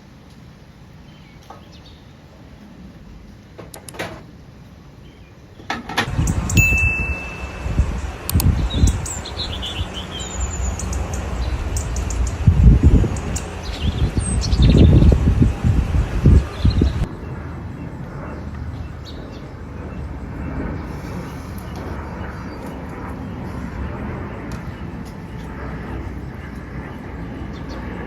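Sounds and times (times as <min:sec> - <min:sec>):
birds chirping: 0:05.0 - 0:28.0
low rumbling: 0:06.1 - 0:28.0.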